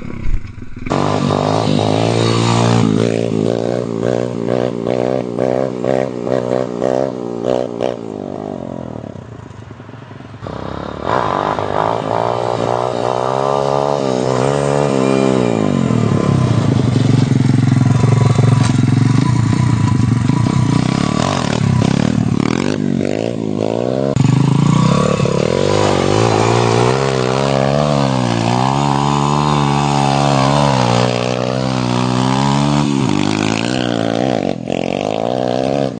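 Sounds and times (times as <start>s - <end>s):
dirt bike engine revving: 0.0s - 9.1s, 10.4s - 35.9s.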